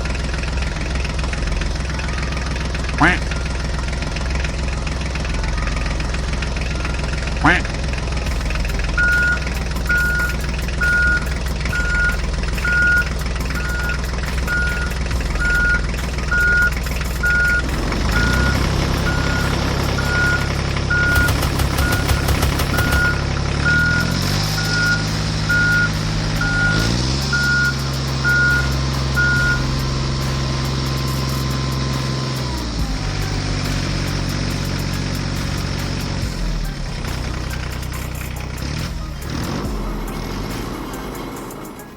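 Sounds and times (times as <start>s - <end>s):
reversing alarm beeping: 0.0s - 37.0s
engine running: 0.0s - 41.9s.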